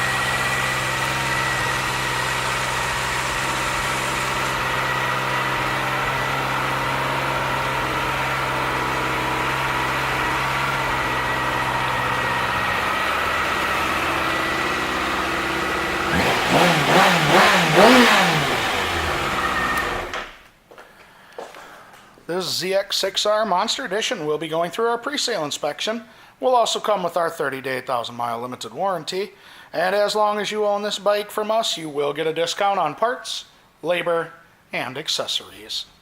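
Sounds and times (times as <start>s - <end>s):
motorcycle engine idling and revving: 0.0s - 20.3s.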